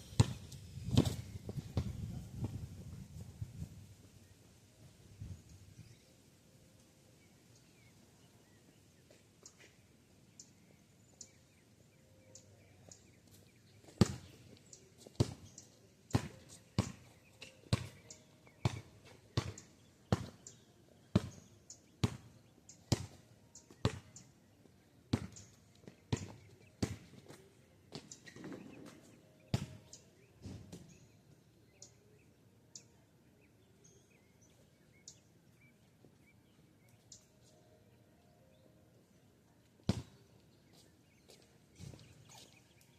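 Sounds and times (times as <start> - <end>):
basketball bouncing on pavement: 0.0 - 2.6, 13.9 - 14.4, 15.1 - 15.5, 16.1 - 20.5, 21.1 - 23.2, 23.8 - 24.1, 25.1 - 30.9, 39.8 - 40.2.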